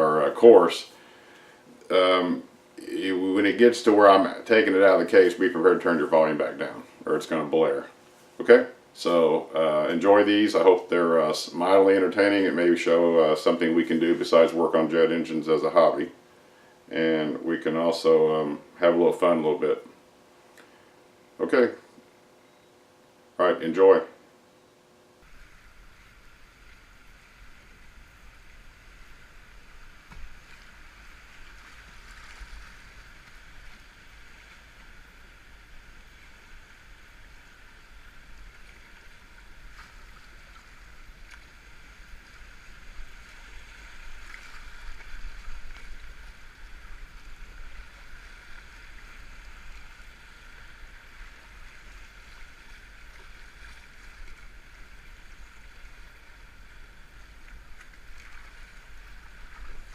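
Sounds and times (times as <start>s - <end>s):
muffled river water rushing: 25.2s - 59.9s.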